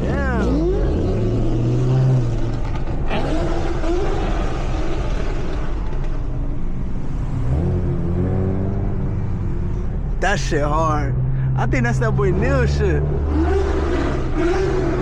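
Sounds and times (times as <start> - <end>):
car exhaust rumbling: 0.0 - 15.0
engine rev: 0.0 - 15.0.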